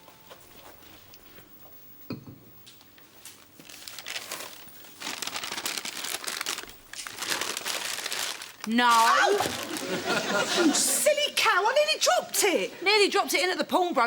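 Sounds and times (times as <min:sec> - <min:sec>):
wrapping crumpling: 0:03.3 - 0:10.0.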